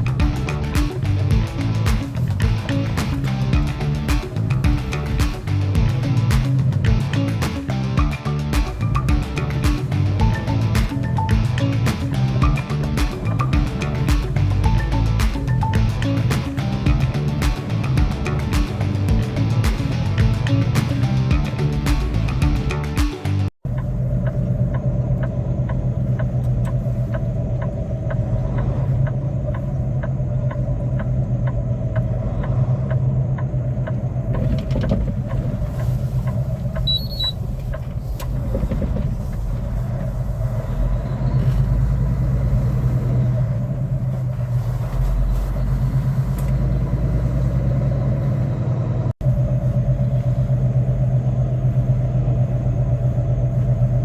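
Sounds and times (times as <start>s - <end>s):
truck engine droning: 0.0s - 54.0s
light regular ticking: 23.7s - 40.6s.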